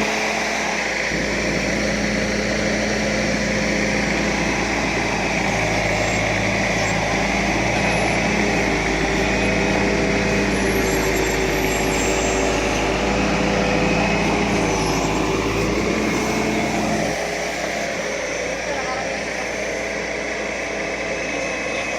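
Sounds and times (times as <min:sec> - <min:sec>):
diesel engine running: 0:00.0 - 0:21.9
high-pitched whine: 0:00.0 - 0:21.9.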